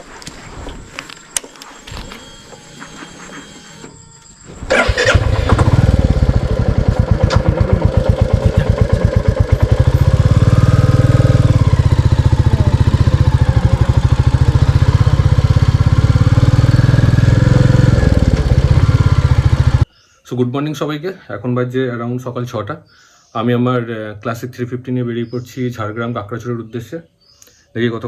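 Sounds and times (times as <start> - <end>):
motorcycle engine idling: 4.6 - 19.9.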